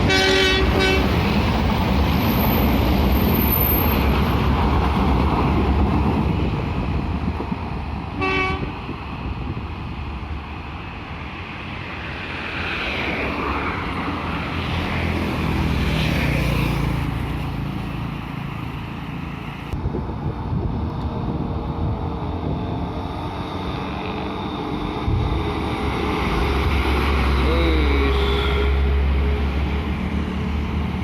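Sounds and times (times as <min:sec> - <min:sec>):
vehicles rumbling: 0:00.0 - 0:31.0.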